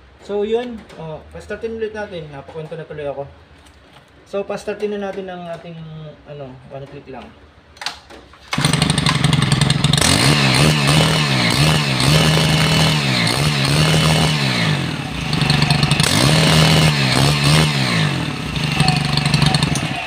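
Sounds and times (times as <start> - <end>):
small engine revving: 8.5 - 20.0.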